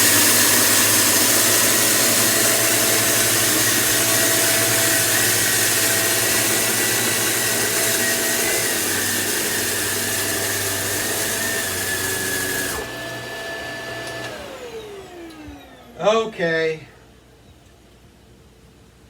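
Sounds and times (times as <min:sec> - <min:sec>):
vacuum cleaner motor whine: 0:00.0 - 0:16.7.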